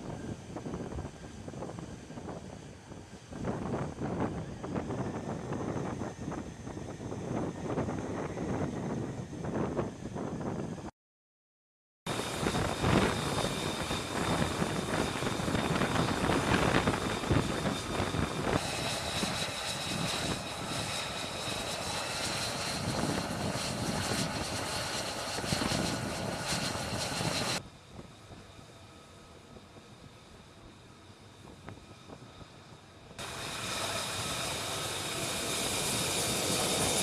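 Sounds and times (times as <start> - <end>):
jet engine running: 0.0 - 10.9, 12.1 - 37.0.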